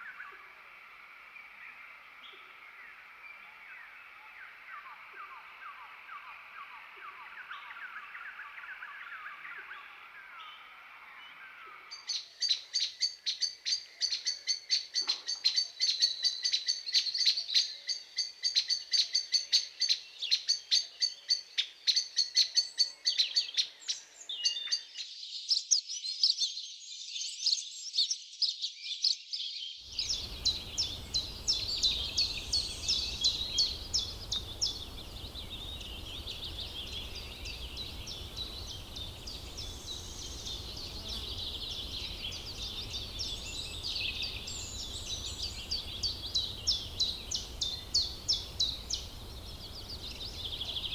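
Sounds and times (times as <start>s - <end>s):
birds chattering and chirping: 29.9s - 50.9s.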